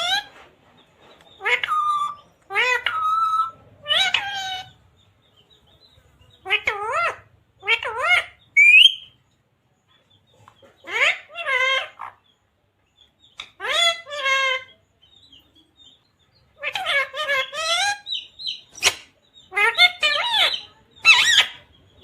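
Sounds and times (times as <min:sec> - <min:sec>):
parrot calling: 0:00.0 - 0:00.3, 0:01.4 - 0:04.8, 0:06.4 - 0:09.2, 0:10.8 - 0:12.2, 0:13.4 - 0:14.8, 0:16.6 - 0:21.8.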